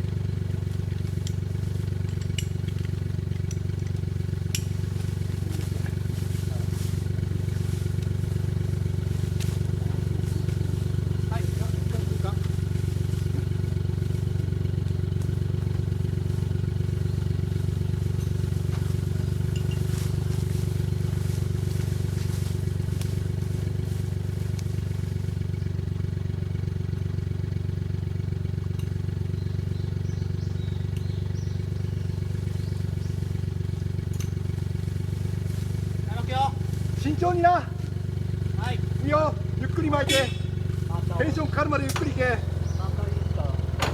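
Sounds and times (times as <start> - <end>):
car engine idling: 0.0 - 43.9
light clicks and knocks: 41.8 - 42.6, 43.6 - 43.9.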